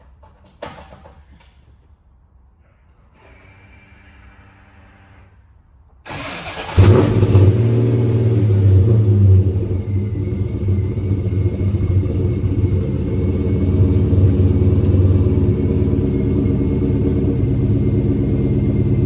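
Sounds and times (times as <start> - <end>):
car engine cranking: 6.1 - 19.0
car engine starting and idling: 6.1 - 19.0.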